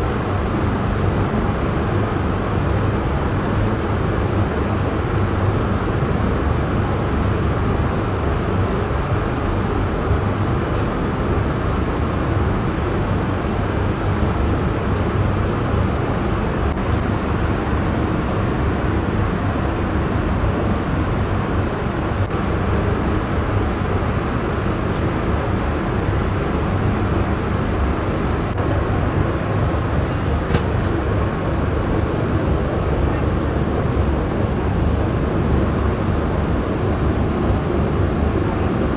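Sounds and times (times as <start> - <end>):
airliner cabin air rush: 10.4 - 38.9.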